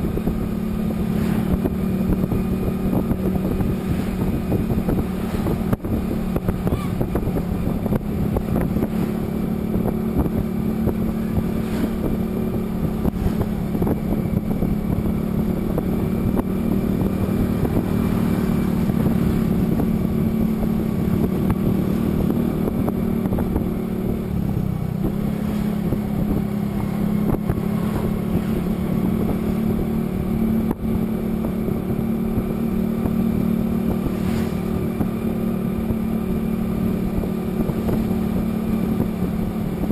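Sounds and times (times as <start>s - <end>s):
vehicle engine running: 0.0s - 39.9s
wind noise on microphone: 0.0s - 39.9s.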